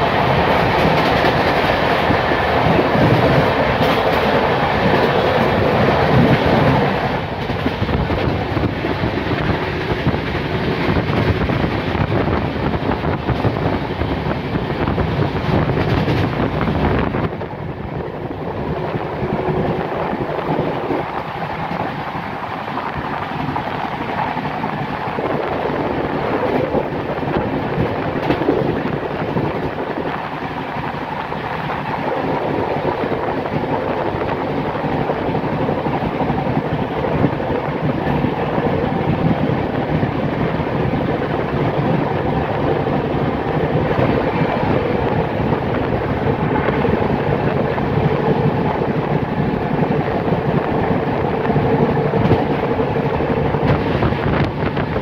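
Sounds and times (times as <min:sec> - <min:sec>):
train wheels rumbling on rails: 0:00.0 - 0:55.0
wind noise: 0:00.0 - 0:55.0.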